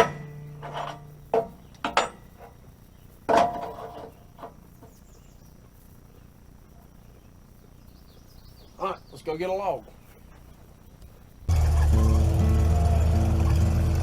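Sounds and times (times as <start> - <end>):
sharp clattering knocks: 0.0 - 2.7, 3.3 - 5.0
faint outdoor background: 0.0 - 14.0.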